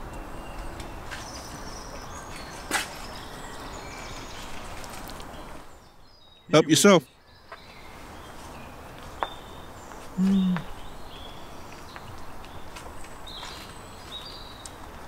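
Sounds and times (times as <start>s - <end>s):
small birds chirping: 0.0s - 14.9s
person humming mm: 10.2s - 10.7s.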